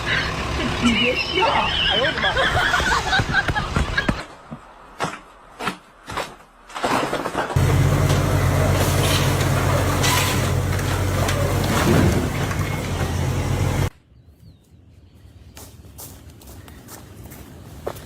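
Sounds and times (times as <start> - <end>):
large engine running: 0.0 - 1.7, 7.6 - 13.9.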